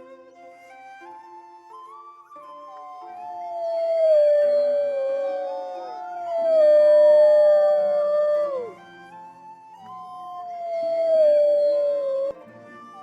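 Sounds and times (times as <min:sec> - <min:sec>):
wolves howling: 0:02.9 - 0:12.4.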